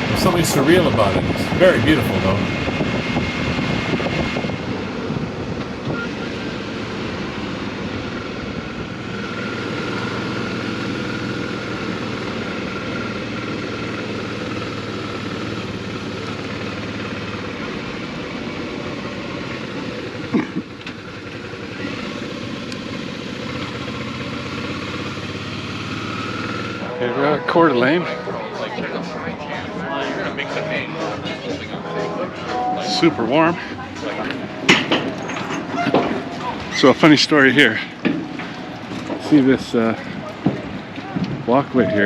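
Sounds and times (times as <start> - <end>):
wind and road noise: 0.0 - 26.8
motorcycle engine running: 6.5 - 26.8.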